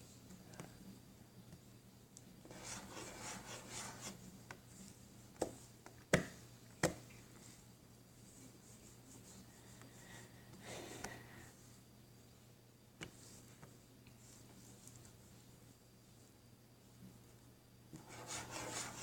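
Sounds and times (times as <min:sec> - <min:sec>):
objects rustling and rubbing: 0:18.0 - 0:19.0.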